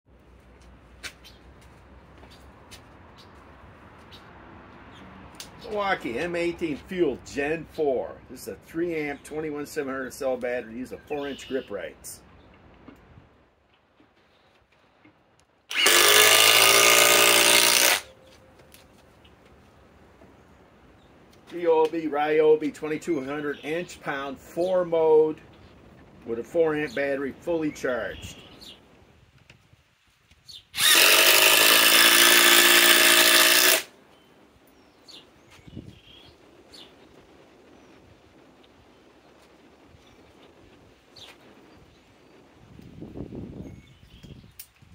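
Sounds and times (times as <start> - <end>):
impact driver driving screw: 15.7 - 18.1, 30.8 - 33.9.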